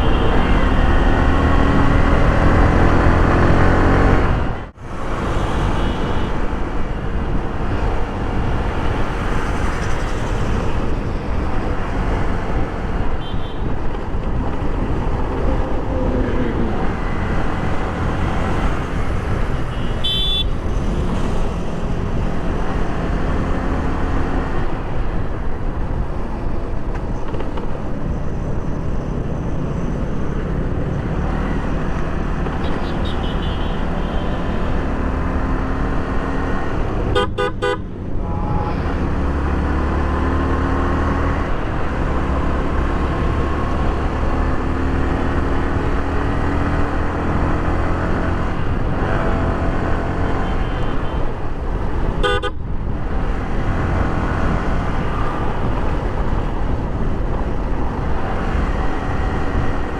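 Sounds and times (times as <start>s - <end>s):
motorcycle engine: 0.0s - 25.6s
wind rush over microphone: 0.0s - 32.0s, 37.9s - 59.9s
horn toot: 19.7s - 20.5s, 37.1s - 39.2s, 52.2s - 52.6s.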